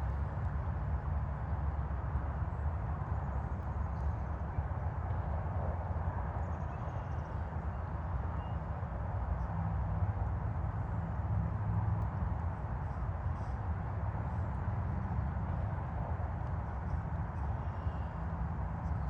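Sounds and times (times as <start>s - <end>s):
distant highway traffic: 10.1s - 19.0s.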